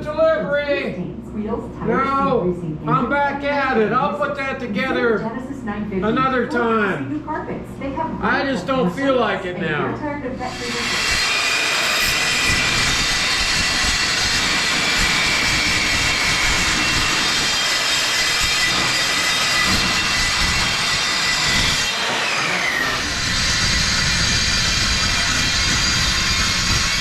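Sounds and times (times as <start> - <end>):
power tool cutting steel: 10.5 - 27.0.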